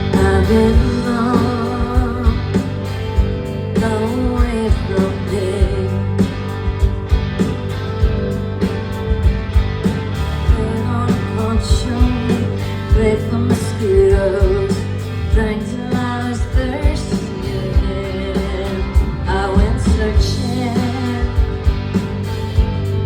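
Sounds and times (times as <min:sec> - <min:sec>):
person singing: 0:00.0 - 0:02.7
guitar: 0:00.0 - 0:23.0
live band music: 0:00.0 - 0:23.0
steady drum beat: 0:00.0 - 0:23.0.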